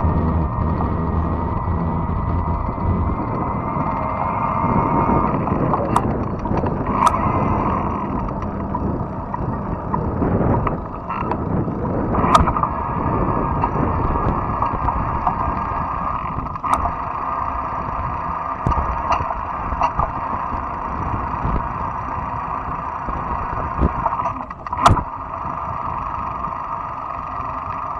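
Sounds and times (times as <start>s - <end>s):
electric motor hum: 0.0s - 27.9s
wind and tyre rumble: 0.0s - 27.9s
bike clicks and knocks: 5.6s - 7.2s.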